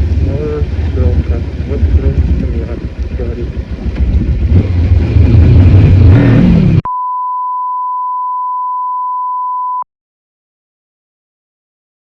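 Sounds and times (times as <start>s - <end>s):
motorcycle engine and wind: 0.0s - 6.8s
steady high beep: 6.8s - 9.8s.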